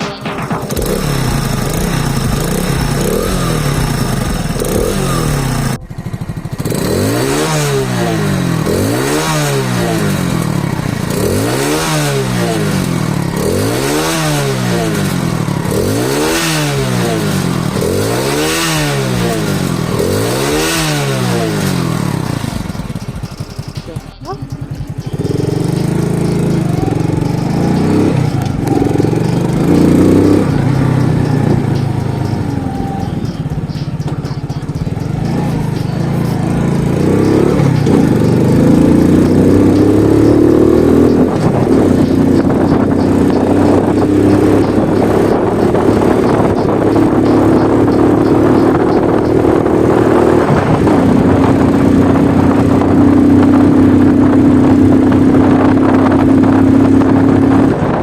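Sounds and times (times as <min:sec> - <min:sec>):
moped engine revving: 0:00.0 - 0:58.0.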